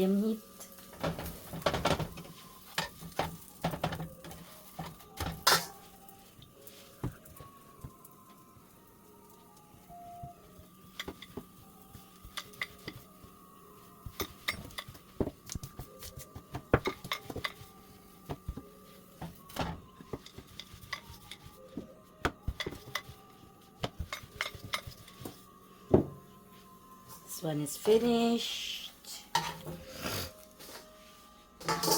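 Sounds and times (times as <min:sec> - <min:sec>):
metal utensils clinking on a pan: 0:05.3 - 0:05.8, 0:31.6 - 0:31.9.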